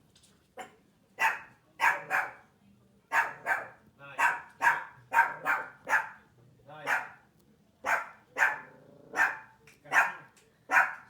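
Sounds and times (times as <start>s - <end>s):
dog barking: 0.6s - 2.5s, 3.1s - 6.2s, 6.8s - 7.2s, 7.8s - 11.0s.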